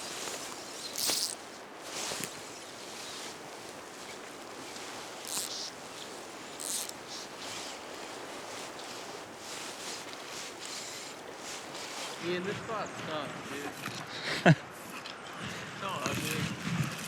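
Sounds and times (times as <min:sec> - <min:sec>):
river water flowing: 0:00.0 - 0:12.3.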